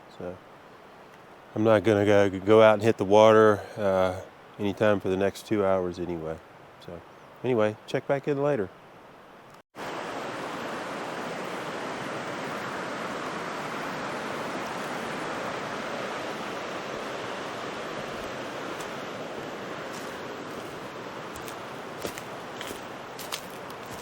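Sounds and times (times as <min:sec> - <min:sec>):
mountain stream rushing over waterfalls: 0:09.8 - 0:24.0.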